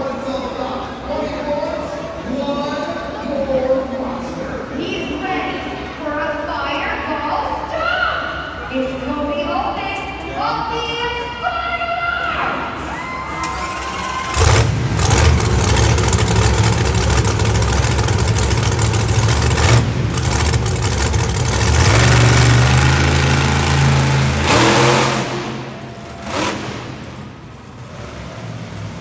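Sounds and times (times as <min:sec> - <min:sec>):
monster truck engine revving: 0:12.8 - 0:29.0.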